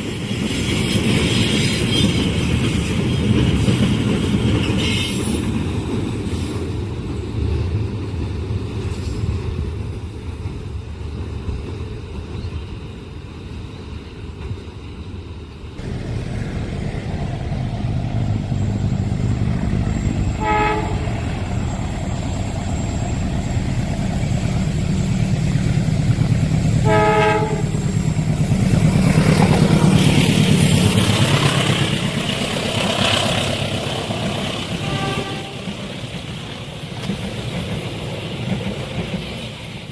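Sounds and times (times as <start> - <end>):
train wheels rumbling on rails: 0.0 - 39.9
locomotive horn blasts: 20.3 - 21.3, 26.8 - 27.8, 34.8 - 35.7.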